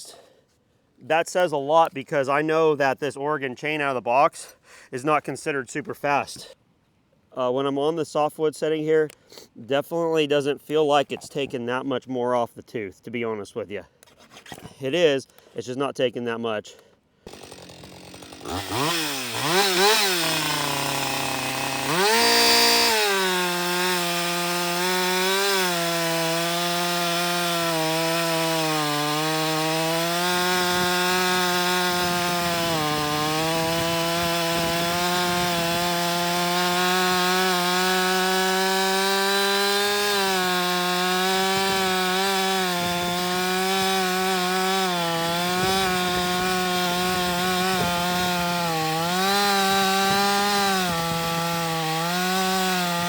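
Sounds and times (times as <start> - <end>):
chainsaw cutting through log: 17.2 - 53.0.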